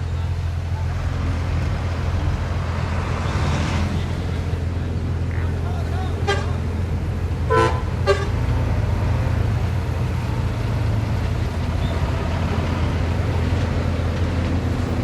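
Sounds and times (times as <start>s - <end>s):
heavy diesel machinery droning: 0.0s - 15.0s
short horn toots: 7.5s - 8.4s.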